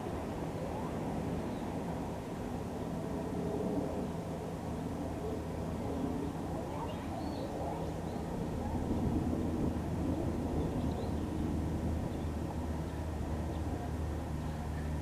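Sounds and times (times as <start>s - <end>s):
low engine hum: 7.6s - 15.0s.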